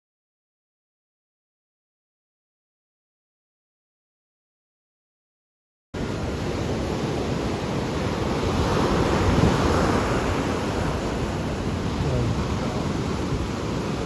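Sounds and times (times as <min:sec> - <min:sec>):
ocean waves washing in: 0:06.0 - 0:14.0.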